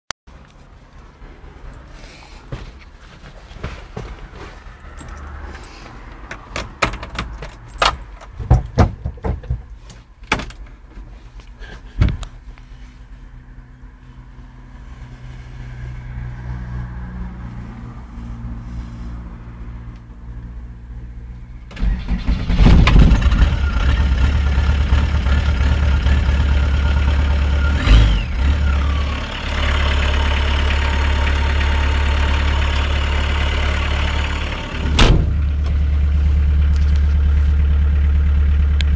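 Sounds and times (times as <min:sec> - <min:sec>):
sharp mechanical clicks and knocks: 0:06.3 - 0:10.7
diesel engine cranking and idling: 0:17.6 - 0:38.9.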